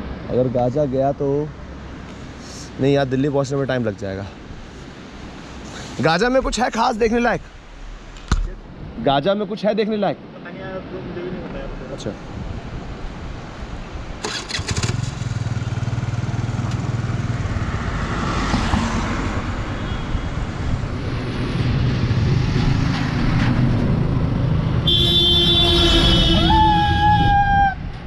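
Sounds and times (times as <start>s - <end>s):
road and wind noise: 0.0s - 28.0s
loud horn: 24.8s - 27.4s.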